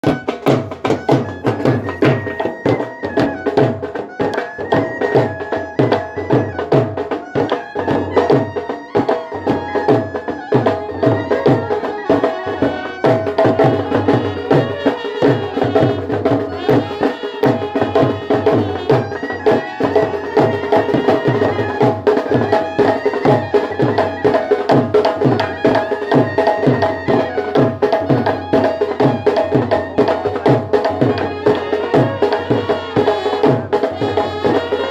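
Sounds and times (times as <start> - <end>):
fast drum beat: 0.0 - 3.9, 8.3 - 34.9
brass band playing: 11.7 - 23.8, 28.2 - 34.9.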